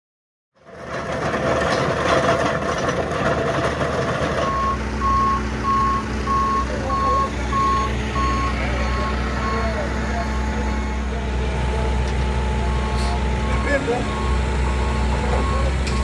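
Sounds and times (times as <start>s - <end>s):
diesel engine rumble and clatter: 0.6s - 16.0s
backup alarm beeping: 4.4s - 11.0s.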